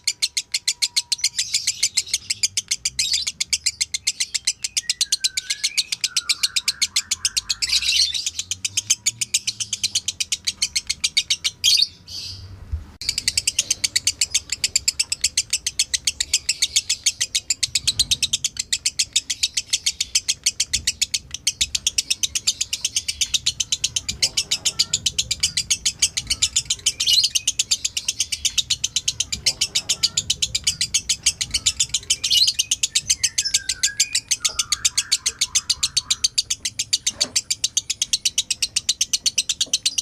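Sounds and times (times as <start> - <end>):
lovebird chattering chirps: 0.0 - 12.4, 13.0 - 40.0.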